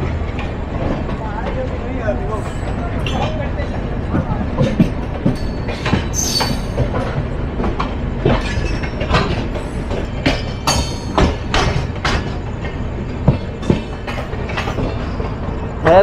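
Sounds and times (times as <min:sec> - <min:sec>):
wheels clacking on rail joints: 0:00.0 - 0:16.0
wheels rumbling on rail: 0:00.0 - 0:16.0.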